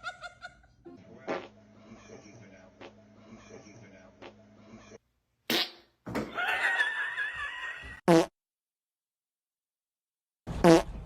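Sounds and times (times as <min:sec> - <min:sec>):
sputtering fart sounds: 0:01.3 - 0:01.5, 0:08.0 - 0:08.4, 0:10.5 - 0:11.0.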